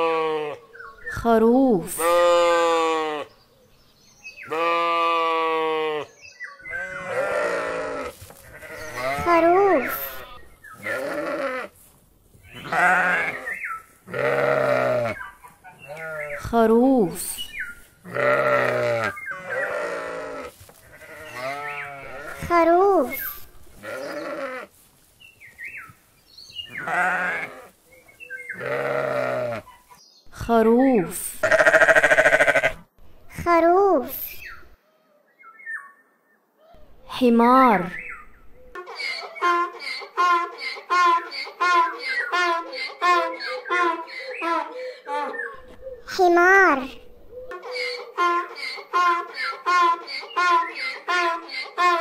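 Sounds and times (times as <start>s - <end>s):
sheep bleating: 0.0s - 0.6s, 2.0s - 3.3s, 4.4s - 11.7s, 12.5s - 15.2s, 15.8s - 16.4s, 18.0s - 23.2s, 23.8s - 24.7s, 26.7s - 27.7s, 28.5s - 29.7s, 31.4s - 32.9s.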